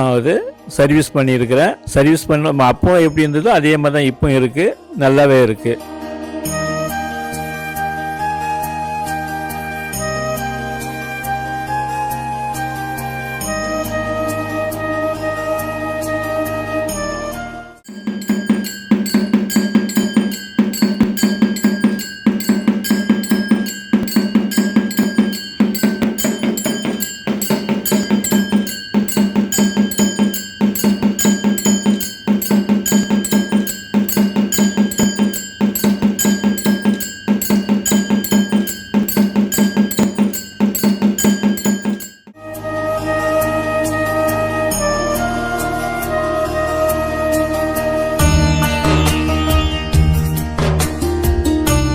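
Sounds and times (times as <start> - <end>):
rapid drum strokes: 17.9 - 42.3
ringing bell: 17.9 - 42.4.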